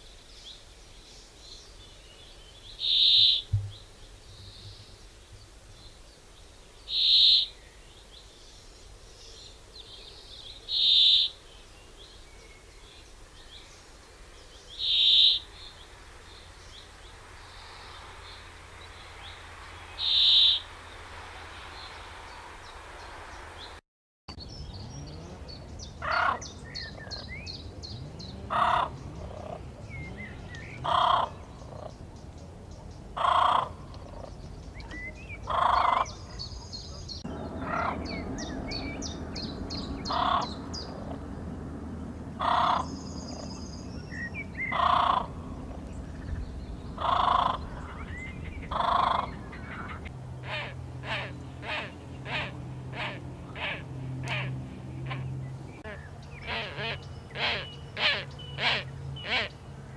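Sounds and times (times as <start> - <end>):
loud bird call: 2.8 - 3.5, 10.7 - 11.4, 14.8 - 15.7, 19.2 - 21.0, 24.8 - 31.9, 34.9 - 41.0, 42.4 - 45.4, 47.0 - 59.6.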